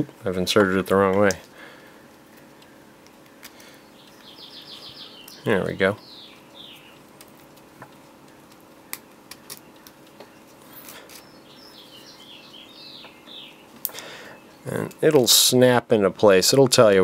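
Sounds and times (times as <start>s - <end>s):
faint bird chirps: 3.7s - 7.0s, 9.4s - 14.9s.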